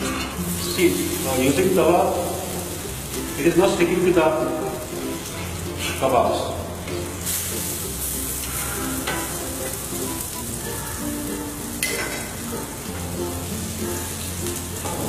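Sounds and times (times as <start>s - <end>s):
kebabs sizzling in oil: 0.0s - 15.0s.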